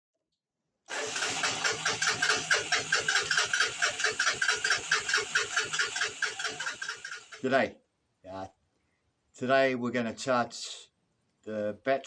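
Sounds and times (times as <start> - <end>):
engine pulsing beat: 1.3 - 7.5.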